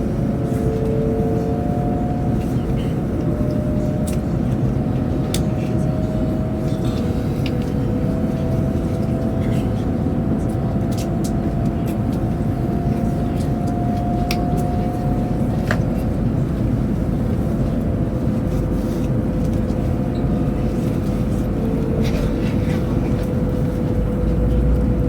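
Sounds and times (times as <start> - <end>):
train interior rumble: 0.0 - 25.0.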